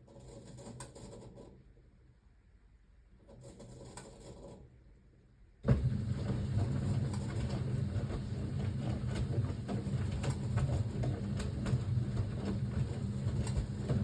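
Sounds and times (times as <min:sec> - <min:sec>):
washing machine running: 0:05.6 - 0:14.0.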